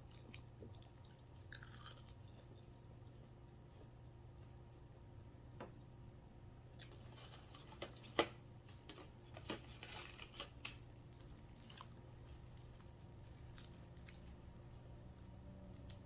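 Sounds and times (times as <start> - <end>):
faint steady hum: 0.0 - 16.0
crinkling rustle: 6.8 - 14.9.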